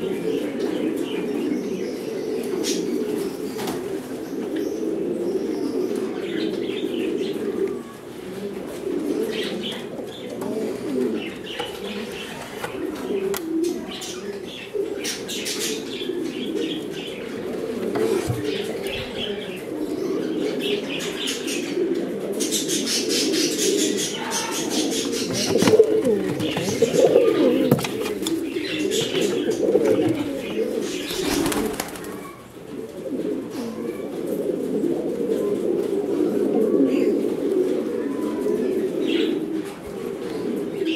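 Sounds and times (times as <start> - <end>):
pigeons cooing: 0.0 - 40.9
wing flaps: 31.1 - 32.2.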